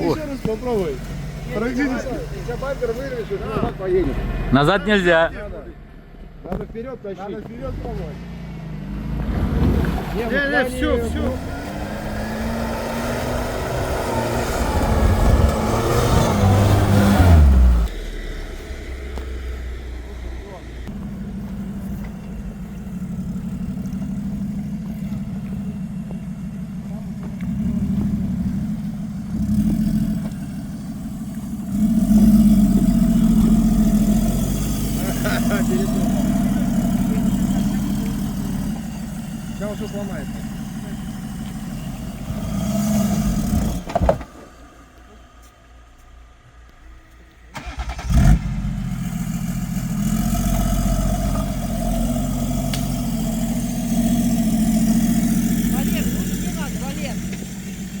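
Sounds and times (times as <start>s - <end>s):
suv engine revving: 0.0s - 45.1s, 47.5s - 58.0s
engine starter cranking: 47.5s - 48.7s.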